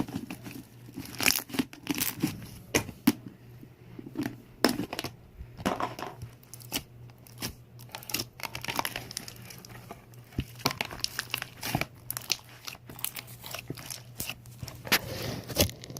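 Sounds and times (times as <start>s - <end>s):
slime crackling and popping: 6.4s - 14.9s.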